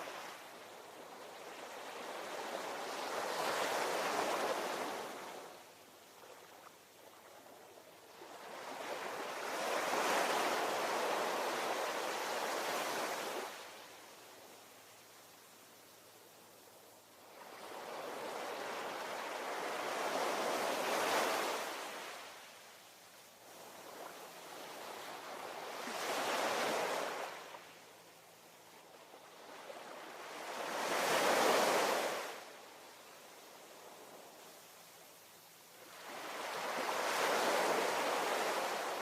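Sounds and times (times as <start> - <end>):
ocean waves breaking on shore: 1.1 - 5.6, 8.1 - 13.9, 23.5 - 27.7, 29.2 - 32.5, 35.8 - 39.0.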